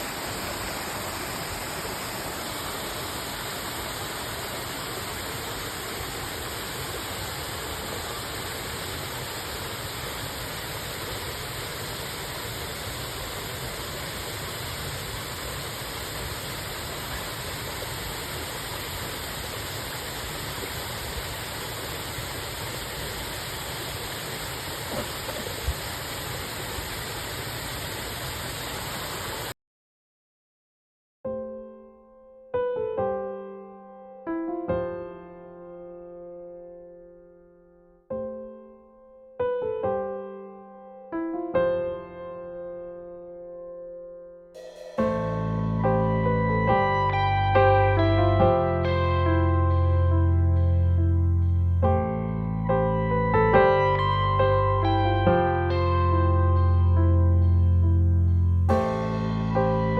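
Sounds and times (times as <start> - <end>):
waterfall rushing: 0.0 - 29.5.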